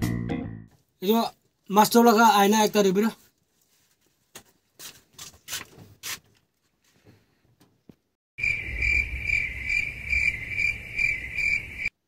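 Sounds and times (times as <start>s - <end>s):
crickets chirping: 8.4s - 12.0s.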